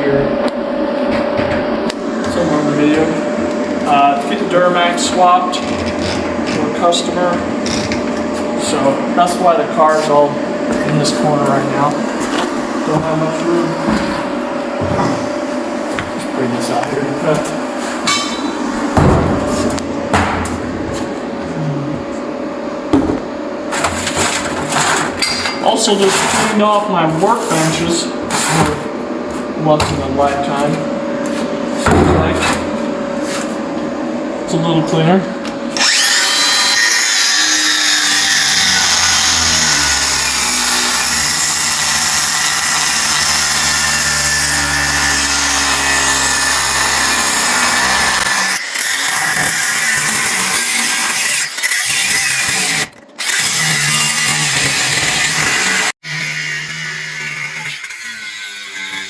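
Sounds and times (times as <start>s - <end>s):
machinery humming: 0.0s - 48.8s
angle grinder cutting metal: 35.8s - 59.0s.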